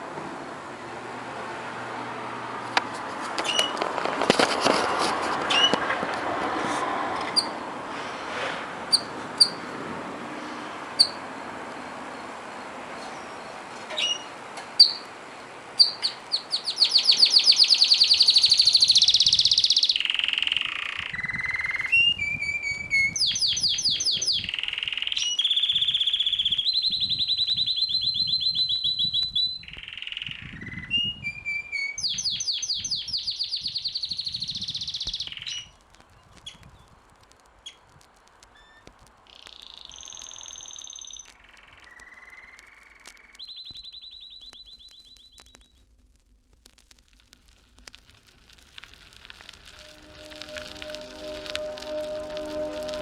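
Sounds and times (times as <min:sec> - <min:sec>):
songbird singing fast trills: 0:15.8 - 0:36.9, 0:39.3 - 0:45.7.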